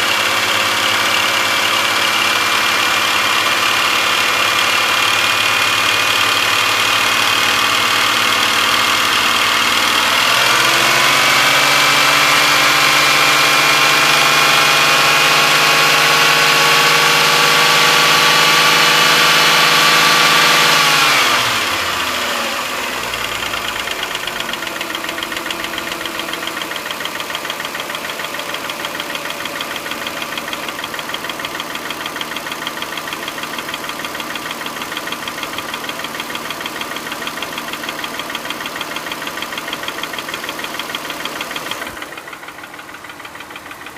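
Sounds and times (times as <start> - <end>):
car engine idling and revving: 0.0 - 43.9.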